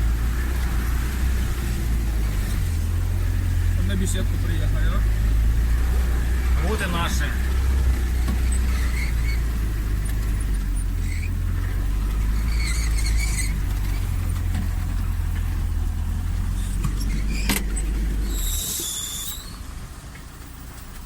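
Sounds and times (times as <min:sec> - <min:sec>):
off-road vehicle engine rumbling: 0:00.0 - 0:21.0
high-pitched squeal: 0:16.6 - 0:19.7.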